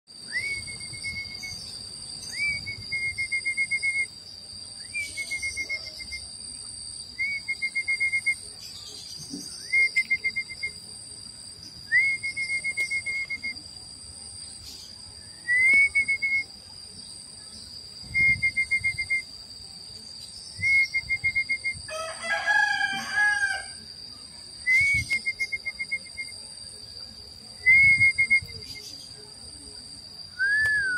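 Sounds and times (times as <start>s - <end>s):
bird whistle and trill call: 0.2s - 4.1s, 4.8s - 6.2s
rooster crowing: 21.8s - 23.9s.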